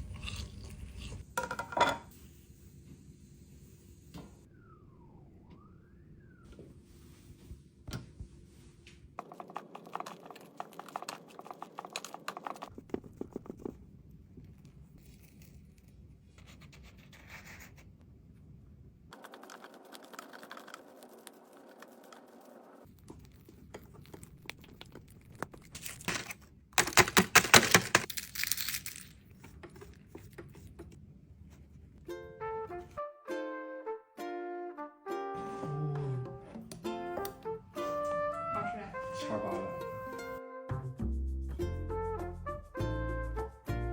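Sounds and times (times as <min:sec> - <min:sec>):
packaging crinkling and tearing: 0:24.6 - 0:30.0.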